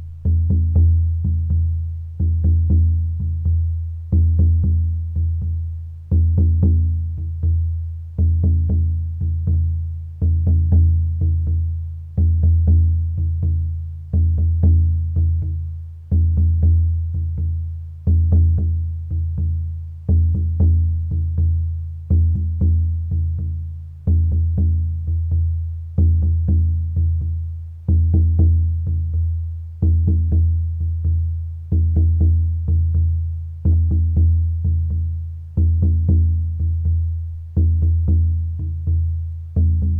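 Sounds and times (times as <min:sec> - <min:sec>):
low-pitched drum beats: 0:00.0 - 0:39.9.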